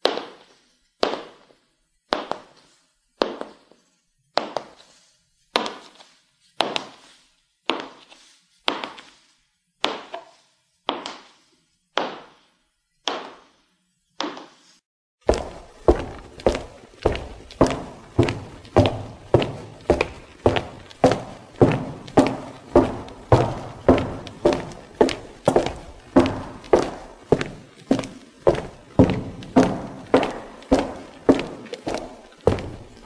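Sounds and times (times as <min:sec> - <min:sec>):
high heels clicking on hard floor: 0:02.1 - 0:02.6, 0:03.2 - 0:03.6, 0:06.6 - 0:07.0, 0:15.2 - 0:33.0.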